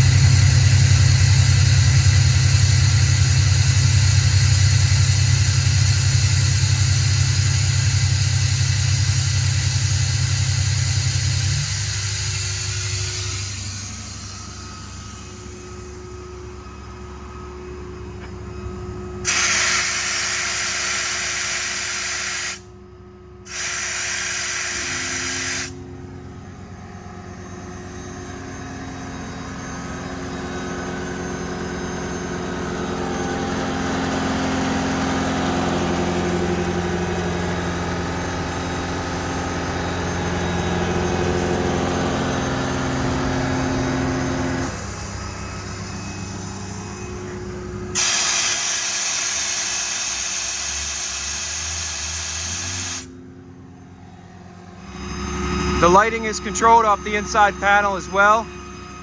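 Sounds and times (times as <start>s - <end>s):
compressed air hissing: 0.0s - 15.6s, 19.3s - 22.6s, 23.5s - 25.8s, 48.0s - 53.1s
air compressor and engine drone: 0.0s - 59.0s.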